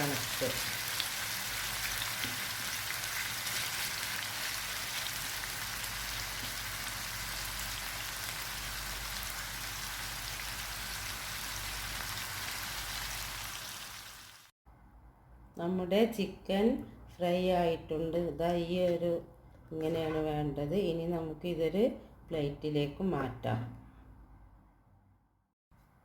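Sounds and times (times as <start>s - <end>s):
chicken sizzling in hot oil: 0.0s - 14.5s.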